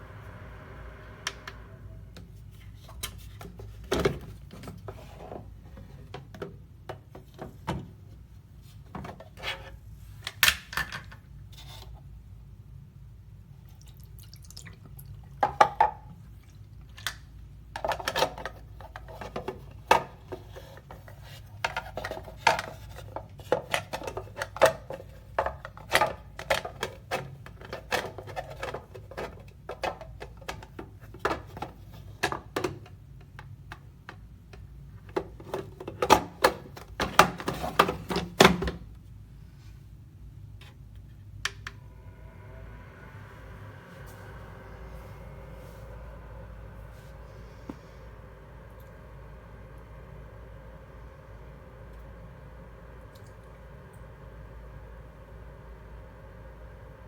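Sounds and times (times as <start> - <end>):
steady low hum: 0.0 - 6.8, 36.4 - 57.0.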